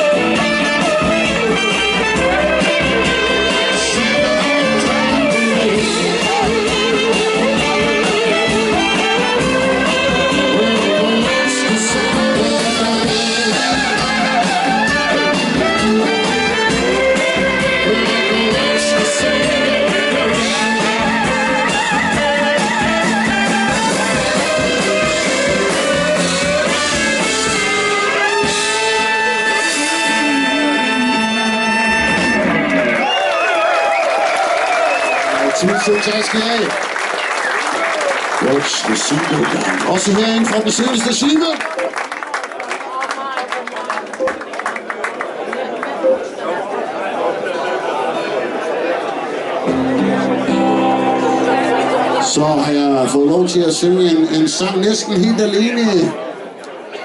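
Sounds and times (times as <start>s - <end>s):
bending lead melody: 0.0s - 33.1s, 49.6s - 54.2s
blues-rock band playing: 0.0s - 33.3s, 49.6s - 55.4s.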